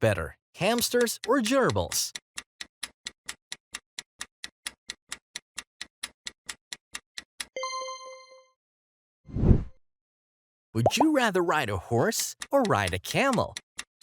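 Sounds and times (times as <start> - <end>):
clock ticking: 0.6 - 2.2, 10.9 - 13.9.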